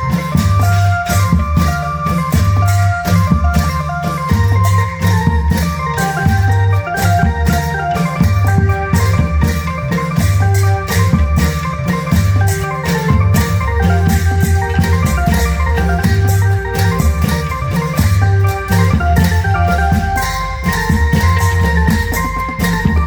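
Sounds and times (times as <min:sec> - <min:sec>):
band music over pa system: 0:00.0 - 0:23.0
bright melody: 0:00.0 - 0:23.0
drum and cymbal beats: 0:00.0 - 0:23.0
heavy bass line: 0:02.6 - 0:23.0.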